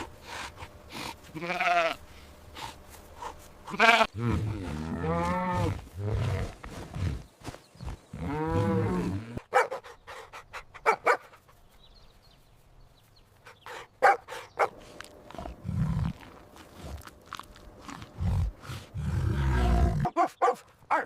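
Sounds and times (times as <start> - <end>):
dog barking: 9.5 - 9.9, 10.8 - 11.3, 14.0 - 14.8, 20.1 - 21.0.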